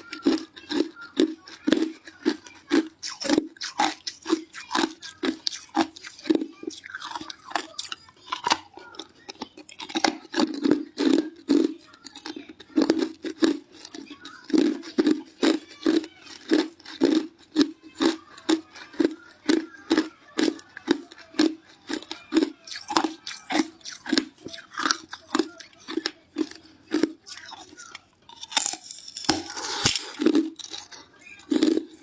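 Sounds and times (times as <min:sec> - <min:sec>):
person chewing ice cubes: 0:00.0 - 0:32.0.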